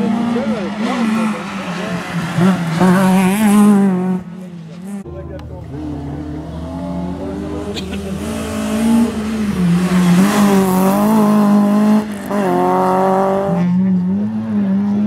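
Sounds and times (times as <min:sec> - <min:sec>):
car engine revving hard: 0:05.7 - 0:15.0.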